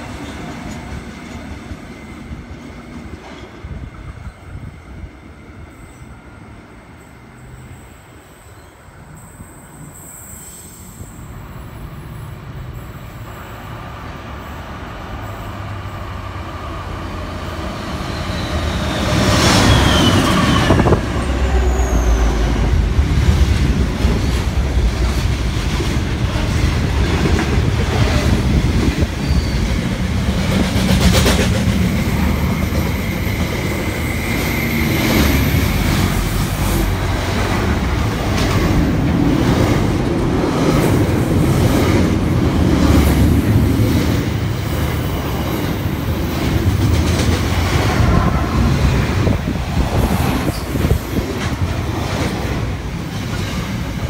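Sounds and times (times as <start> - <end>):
wheel squeals: 29.1 - 29.9.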